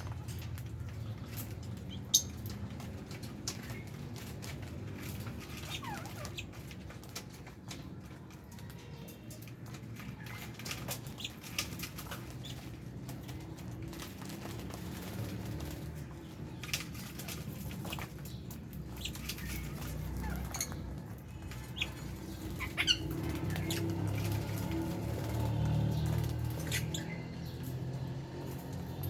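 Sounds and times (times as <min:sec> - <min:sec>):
birds chirping and clicking: 0:00.0 - 0:29.0.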